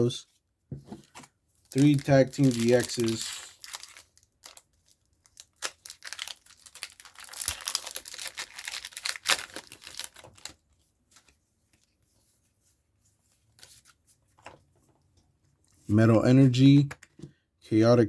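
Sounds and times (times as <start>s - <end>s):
foil wrapper tearing and crinkling: 1.7s - 10.6s.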